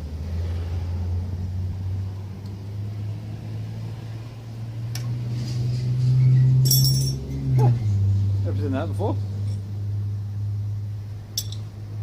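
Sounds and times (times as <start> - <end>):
low mechanical hum: 0.0 - 12.0
ringing metal clink: 6.6 - 7.3, 11.4 - 11.7.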